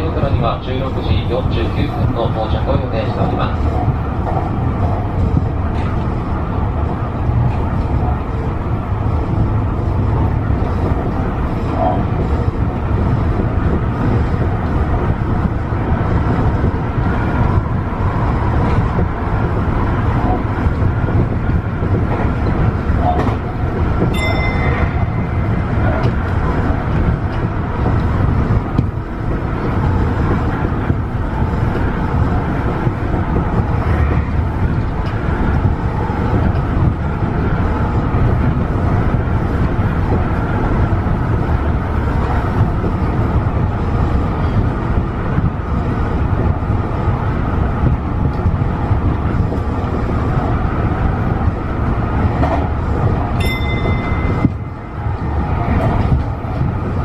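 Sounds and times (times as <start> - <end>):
electric train rumbling: 0.0 - 57.0
brief high tone: 24.1 - 25.3, 53.4 - 54.6.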